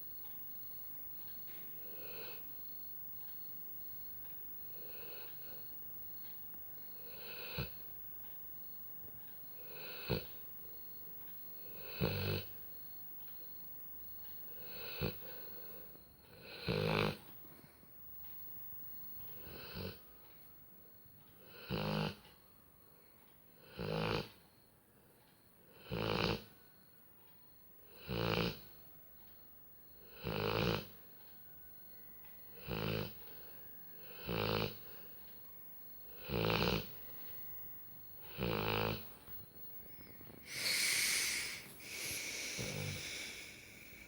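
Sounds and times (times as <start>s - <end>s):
dog snoring: 1.8s - 2.4s, 4.7s - 5.7s, 7.0s - 7.8s, 9.6s - 10.4s, 11.6s - 12.6s, 14.5s - 17.3s, 19.3s - 20.1s, 21.4s - 22.2s, 23.6s - 24.4s, 25.7s - 26.5s, 27.9s - 28.8s, 30.0s - 31.1s, 32.5s - 35.3s, 36.0s - 37.1s, 38.2s - 39.4s, 40.3s - 44.0s
hissy breath: 39.8s - 44.0s.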